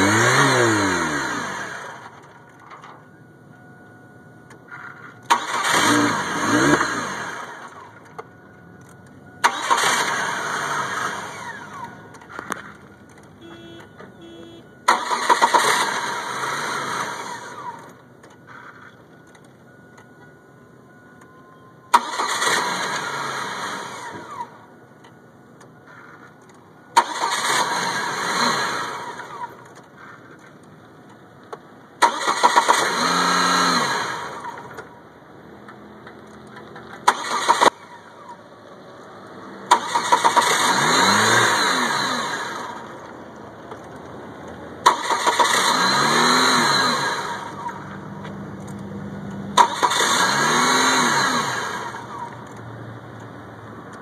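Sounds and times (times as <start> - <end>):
starter cranking engine: 5.3 - 7.8, 9.4 - 13.3, 14.9 - 17.9, 21.9 - 24.5, 26.9 - 30.5, 32.0 - 34.9, 36.4 - 38.4, 39.6 - 44.0, 44.8 - 47.9, 49.5 - 52.6.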